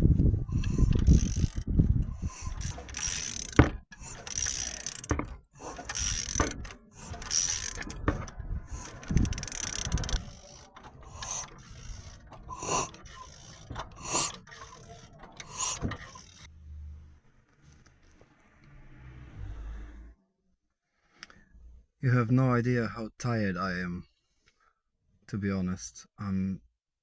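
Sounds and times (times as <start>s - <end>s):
metal mechanism strokes: 0.5s - 17.1s.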